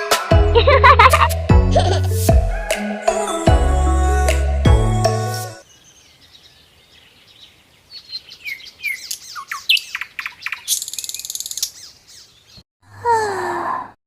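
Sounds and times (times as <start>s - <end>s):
small birds chirping: 5.6s - 12.6s.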